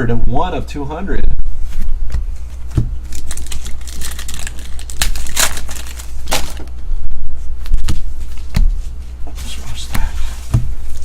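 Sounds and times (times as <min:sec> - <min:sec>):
card pack wrappers crinkling: 0:03.0 - 0:06.7.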